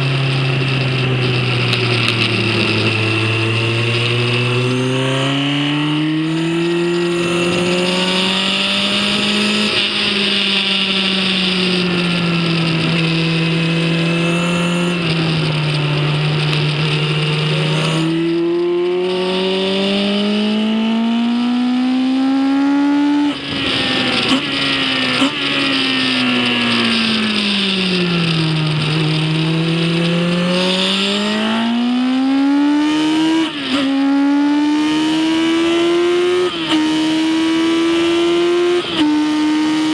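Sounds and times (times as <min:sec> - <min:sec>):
racing engine accelerating: 0:00.0 - 0:39.9.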